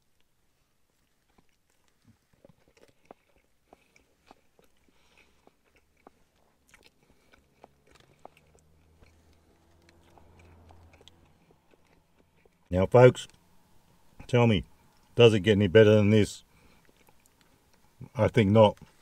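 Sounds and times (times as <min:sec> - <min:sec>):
man chewing with wet smacks: 0:00.0 - 0:13.4, 0:16.4 - 0:19.0.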